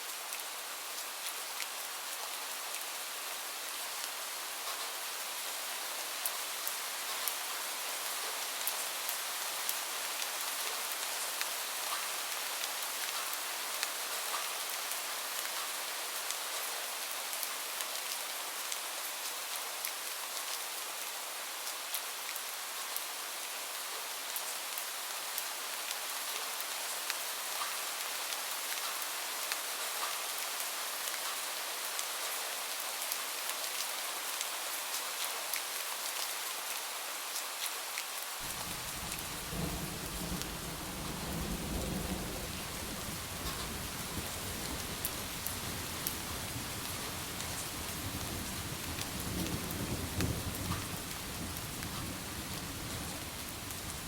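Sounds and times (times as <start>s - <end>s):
steady rain: 0.0s - 54.0s
low thunder rumble: 38.4s - 54.0s.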